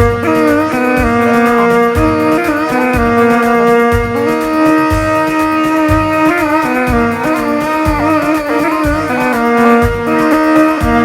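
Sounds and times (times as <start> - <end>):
ornamented wavering melody: 0.1 - 4.4, 5.8 - 10.4.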